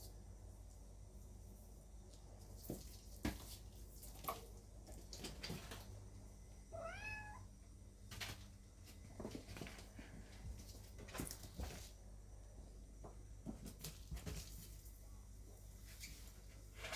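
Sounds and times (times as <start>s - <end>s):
cat meowing: 6.7s - 7.5s.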